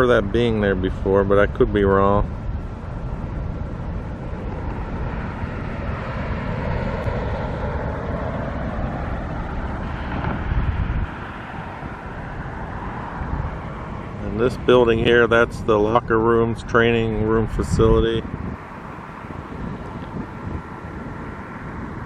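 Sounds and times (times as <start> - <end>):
traffic noise: 0.0 - 22.0
vehicle passing: 0.0 - 22.0
wind buffeting microphone: 0.0 - 22.0.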